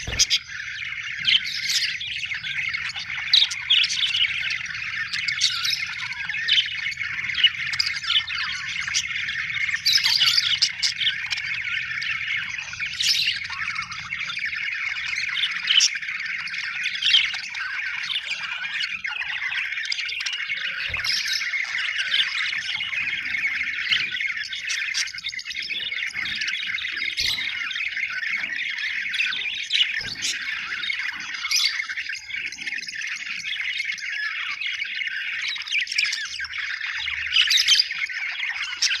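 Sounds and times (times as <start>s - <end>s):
budgerigars chattering: 0.0s - 39.0s
sharp bird chirps and squawks: 0.0s - 39.0s.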